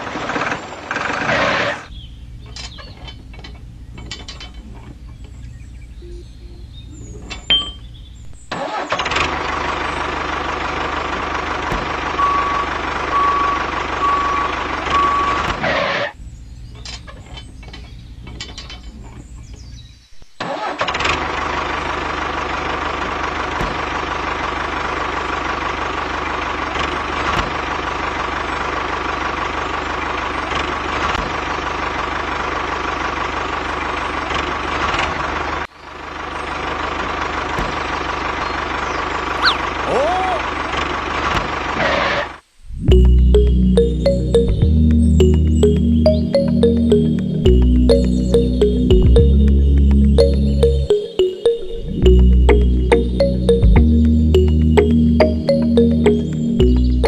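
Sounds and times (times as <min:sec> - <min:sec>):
short beeps: 0:06.0 - 0:06.6, 0:12.2 - 0:15.5
tractor engine running: 0:09.0 - 0:15.6, 0:21.0 - 0:30.3.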